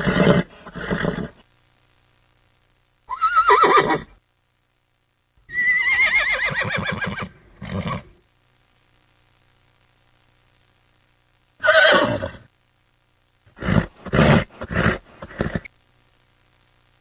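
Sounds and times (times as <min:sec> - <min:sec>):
horse neighing: 0:13.6 - 0:15.7.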